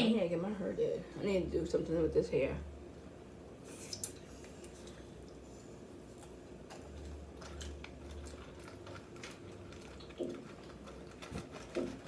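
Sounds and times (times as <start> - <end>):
chewing: 6.0 - 12.0.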